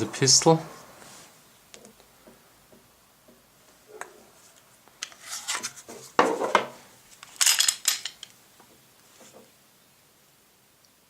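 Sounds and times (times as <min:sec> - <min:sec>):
rubbing and scraping of pistol: 0:05.0 - 0:06.6
rattle of clicks and clatter: 0:07.2 - 0:08.4.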